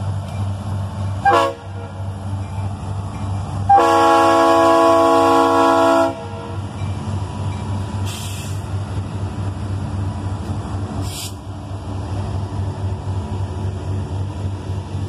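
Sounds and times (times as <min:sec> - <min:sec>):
diesel locomotive engine throb: 0:00.0 - 0:15.0
locomotive horn: 0:01.2 - 0:02.0, 0:03.7 - 0:06.5
brief hisses: 0:08.0 - 0:08.6, 0:11.0 - 0:11.4.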